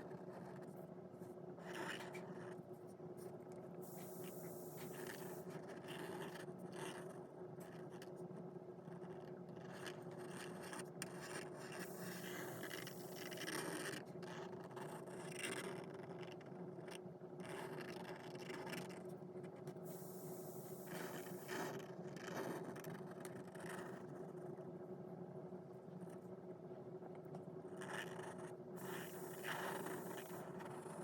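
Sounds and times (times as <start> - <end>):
faint steady hum: 0.0 - 31.0
pen scratching on paper: 3.8 - 7.1, 8.9 - 13.8, 19.9 - 24.5, 27.8 - 31.0.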